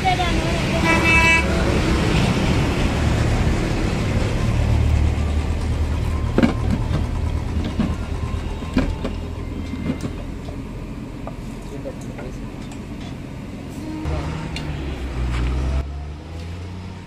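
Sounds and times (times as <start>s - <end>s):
lorry engine running: 0.0s - 16.5s
horn toot: 0.8s - 1.6s.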